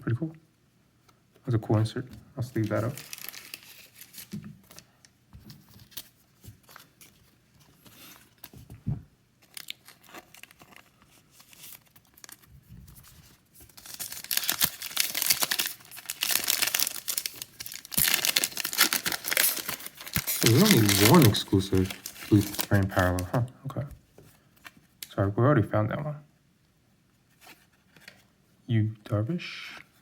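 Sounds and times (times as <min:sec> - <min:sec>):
cards and plastic sleeves rustling: 0:01.1 - 0:23.5, 0:27.3 - 0:28.3
foil wrapper tearing and crinkling: 0:02.6 - 0:04.4, 0:09.4 - 0:12.5, 0:13.7 - 0:23.3.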